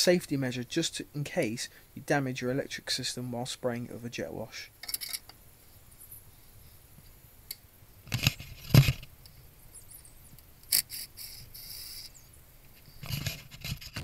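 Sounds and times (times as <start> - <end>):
brief hissing scrape: 10.7 - 12.2.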